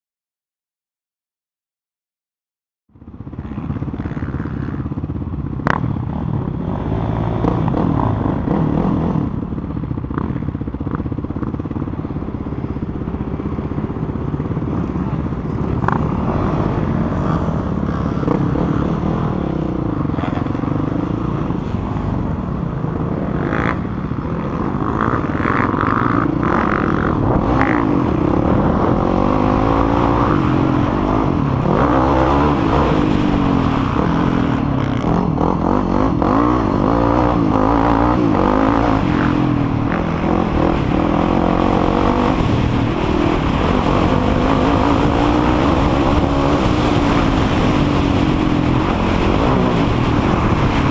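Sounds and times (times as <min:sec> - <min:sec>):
quad engine revving: 0:05.6 - 0:09.4, 0:14.0 - 0:50.9.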